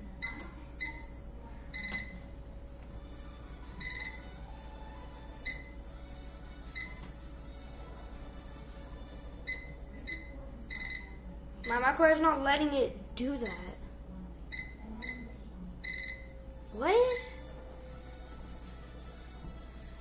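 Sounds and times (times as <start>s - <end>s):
microwave keypad beeps: 0.2s - 1.1s, 1.7s - 2.3s, 3.8s - 4.2s, 5.4s - 5.8s, 6.8s - 7.2s, 9.4s - 11.9s, 13.4s - 13.8s, 14.5s - 16.4s.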